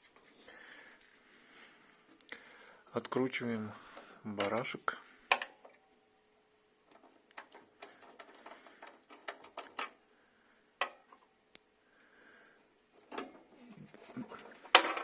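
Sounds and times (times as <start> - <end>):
small metal clicks and rattling: 6.9 - 10.0, 10.8 - 11.3, 13.0 - 15.0.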